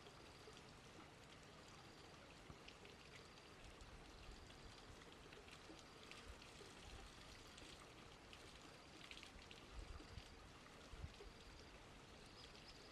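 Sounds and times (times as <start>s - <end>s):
faint outdoor hiss: 0.0s - 12.9s.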